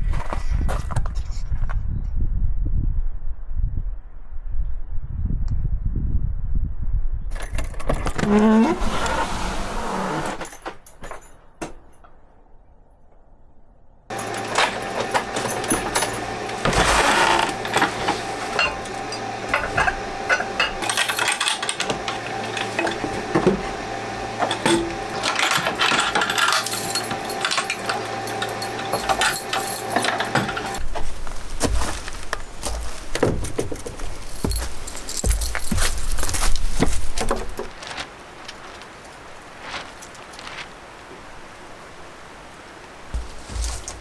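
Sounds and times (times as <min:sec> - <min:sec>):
steady hum: 0:14.1 - 0:37.8, 0:43.1 - 0:44.0
small metal objects clinking: 0:14.1 - 0:38.0.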